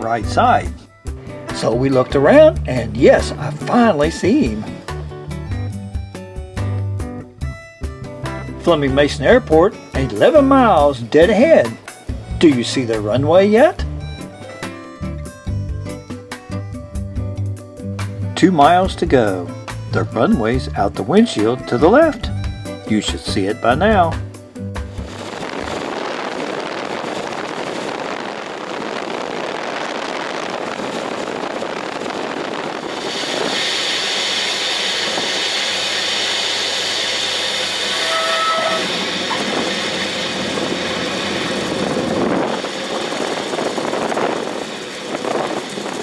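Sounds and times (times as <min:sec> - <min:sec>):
aircraft engine and airflow rush: 0:00.0 - 0:06.6, 0:19.2 - 0:46.0
brief high tone: 0:37.9 - 0:39.5.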